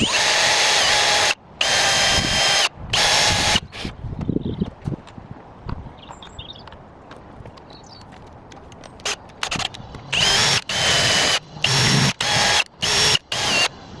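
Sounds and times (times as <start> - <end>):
cordless drill whining: 0.0 - 3.6, 9.4 - 13.7.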